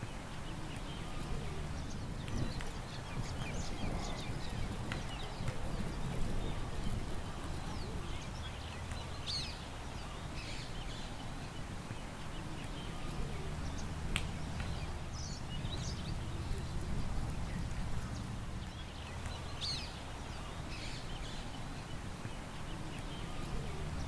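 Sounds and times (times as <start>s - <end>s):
songbirds chirping and trilling: 0.0s - 24.0s
wind rumble: 13.8s - 19.4s.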